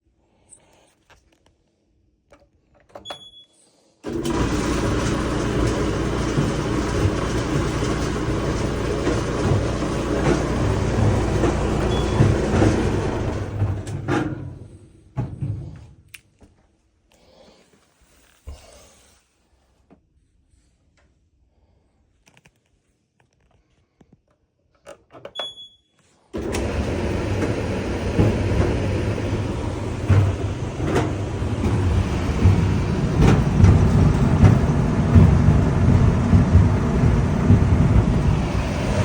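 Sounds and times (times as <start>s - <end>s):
dryer drum rumbling: 4.0s - 16.0s, 26.4s - 39.0s
knocks in dryer drum: 5.0s - 14.6s, 27.3s - 39.0s.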